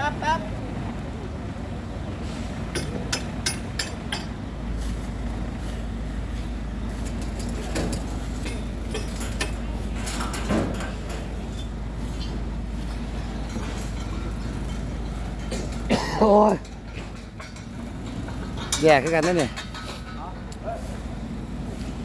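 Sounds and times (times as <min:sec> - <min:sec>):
low engine drone: 0:00.0 - 0:22.0
equipment knocking and clinking: 0:02.7 - 0:04.4, 0:07.0 - 0:20.6.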